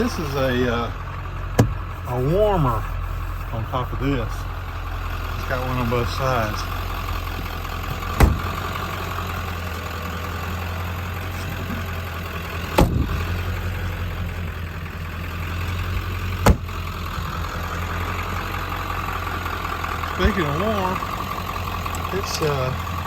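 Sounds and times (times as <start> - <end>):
diesel engine idling: 0.0 - 23.0
sharp knocks: 1.6 - 1.8, 8.2 - 8.6, 12.8 - 13.2, 16.4 - 16.7.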